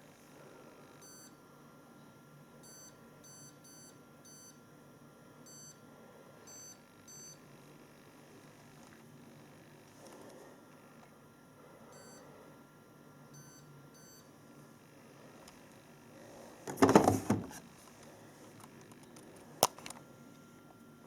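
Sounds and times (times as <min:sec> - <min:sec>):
washing machine control panel beeps: 0:01.0 - 0:01.3, 0:02.6 - 0:04.6, 0:05.5 - 0:05.8, 0:06.5 - 0:07.4, 0:13.4 - 0:14.3.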